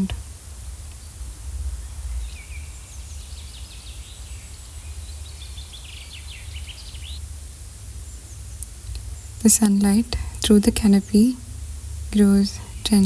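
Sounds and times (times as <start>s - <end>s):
birds chirping: 0.0s - 13.0s
steady low rumble: 7.0s - 13.0s.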